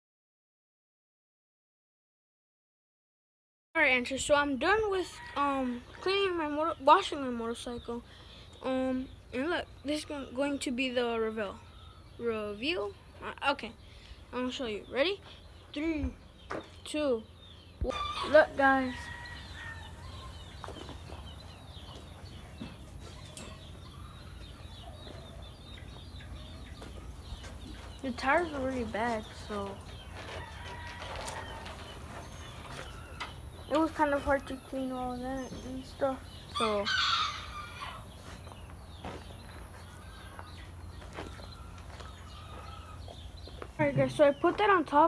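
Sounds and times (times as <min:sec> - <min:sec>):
chicken squawk: 0:17.8 - 0:20.9, 0:36.6 - 0:38.1
chickens clucking: 0:17.8 - 0:44.8
soft scuffs: 0:38.1 - 0:44.0.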